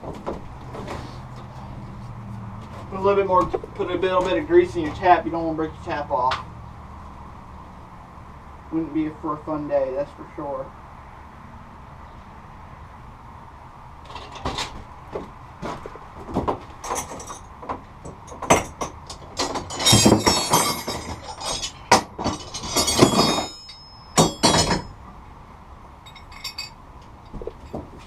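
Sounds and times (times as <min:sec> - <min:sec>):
metal grating: 0:18.2 - 0:25.0
metal hand tools clinking: 0:18.2 - 0:25.0, 0:26.1 - 0:26.8.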